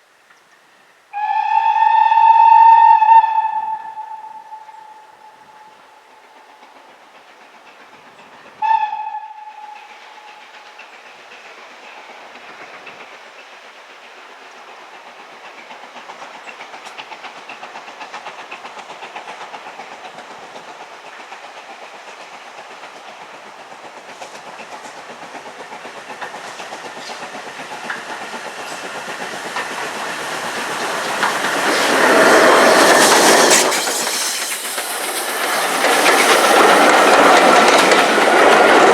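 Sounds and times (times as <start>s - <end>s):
train passing: 0.0s - 38.9s
train whistle blast: 1.1s - 6.1s, 8.6s - 10.5s
wheels clattering over rail joints: 10.2s - 38.9s.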